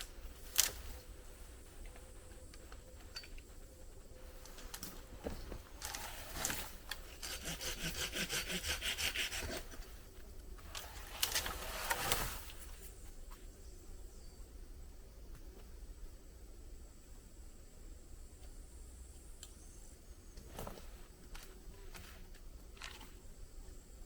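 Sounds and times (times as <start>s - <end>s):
hand saw cutting wood: 5.9s - 9.8s.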